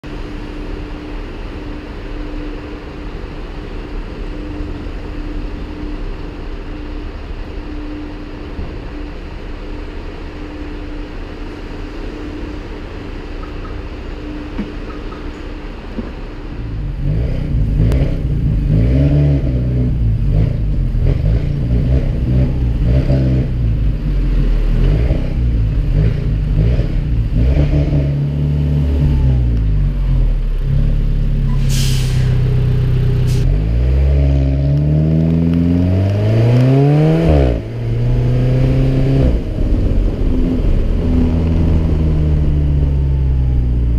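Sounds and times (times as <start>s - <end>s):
car engine running: 0.0s - 31.8s, 32.4s - 43.9s
short hiss: 31.5s - 32.6s.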